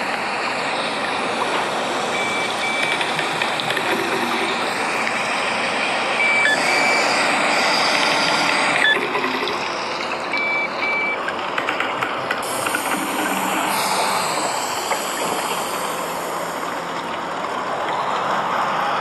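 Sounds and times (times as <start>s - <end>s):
traffic on a wet road: 0.0s - 19.0s
short high electronic beeps: 6.2s - 7.2s
rain hiss: 12.4s - 17.8s.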